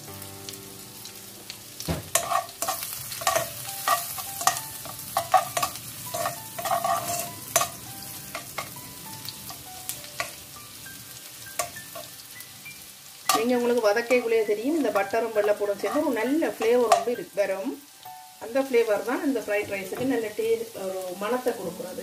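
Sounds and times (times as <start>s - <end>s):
garlic sizzling in butter: 0.0s - 22.0s
metal spoon scraping a pan: 2.1s - 10.4s, 11.5s - 12.2s, 13.3s - 17.2s.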